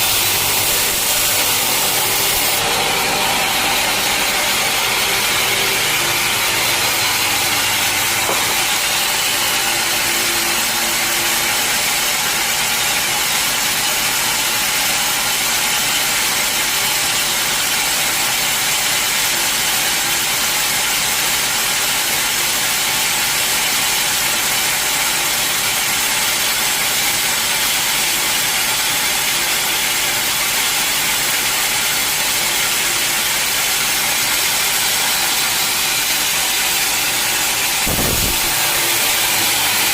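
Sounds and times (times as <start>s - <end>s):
low machine hum: 0.0s - 12.1s
band sawmill running: 0.0s - 39.9s.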